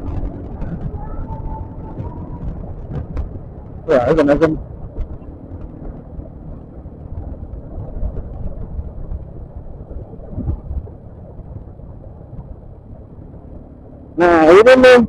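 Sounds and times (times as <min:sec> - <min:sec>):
road and traffic noise: 0:00.0 - 0:15.0
wind rumble on microphone: 0:00.0 - 0:15.0.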